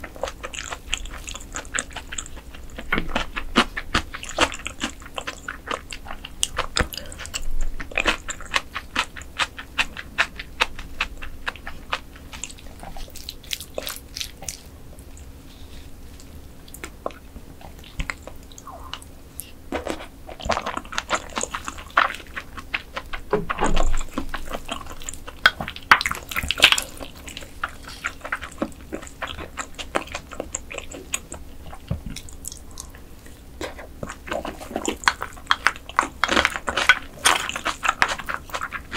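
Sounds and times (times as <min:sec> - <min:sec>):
person chewing with clicky crunches: 0:00.0 - 0:38.9.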